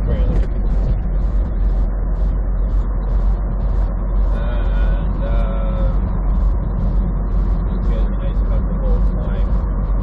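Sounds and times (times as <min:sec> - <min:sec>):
vehicle road and engine noise: 0:00.0 - 0:10.0.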